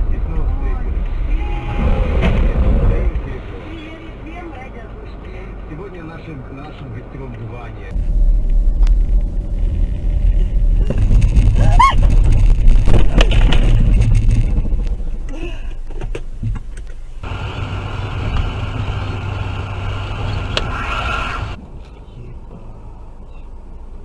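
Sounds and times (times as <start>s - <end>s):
car engine and road rumble: 0.0s - 24.0s
steady high whine: 7.9s - 16.4s.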